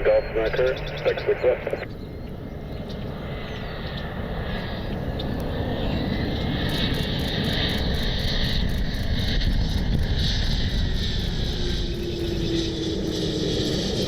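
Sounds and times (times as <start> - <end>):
jet engines on approach: 0.0 - 14.0.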